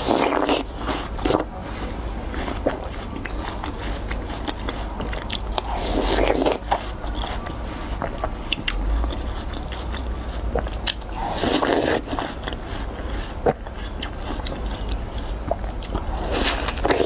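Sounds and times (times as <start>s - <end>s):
person chewing watermelon: 0.0s - 17.0s
steady low hum: 0.0s - 17.0s.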